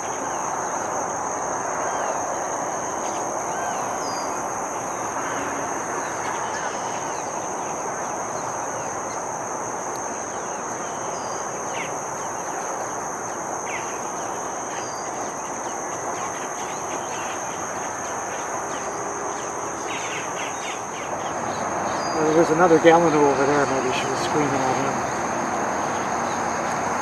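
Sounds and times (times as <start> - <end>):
high-pitched insect drone: 0.0 - 27.0
falling bird calls: 10.3 - 22.6.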